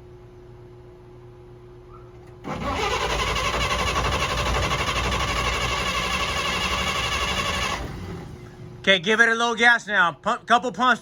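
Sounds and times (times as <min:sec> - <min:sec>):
starter motor cranking engine: 0:02.4 - 0:08.8.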